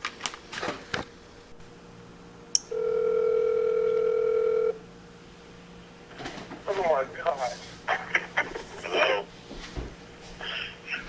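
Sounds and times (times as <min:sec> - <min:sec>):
phone line click: 0:02.6 - 0:04.8
telephone ringback tone: 0:02.7 - 0:04.8.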